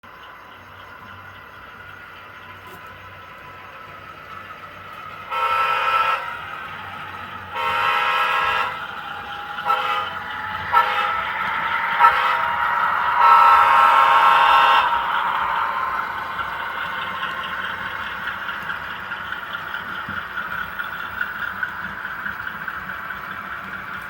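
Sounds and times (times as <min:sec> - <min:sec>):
model train running noise: 0:00.0 - 0:24.0
model train horn: 0:05.2 - 0:19.1.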